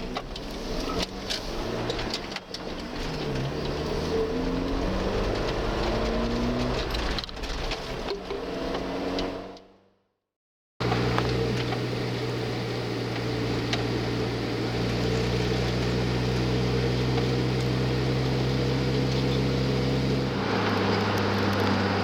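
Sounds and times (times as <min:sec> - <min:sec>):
vehicle engine running: 0:10.8 - 0:22.0.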